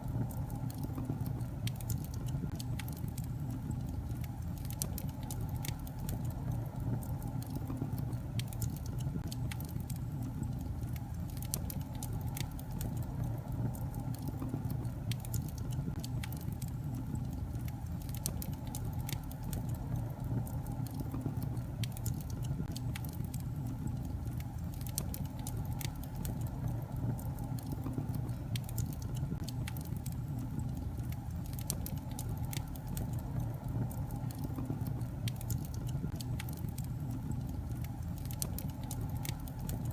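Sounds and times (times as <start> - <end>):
fire rumbling in a fireplace: 0.0 - 39.9
logs crackling and popping: 0.0 - 39.9.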